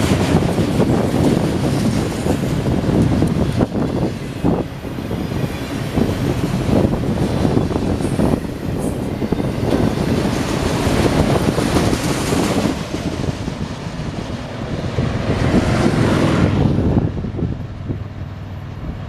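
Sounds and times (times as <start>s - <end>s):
steel wheels on rail: 0.0s - 19.0s
wind buffeting microphone: 0.0s - 19.0s.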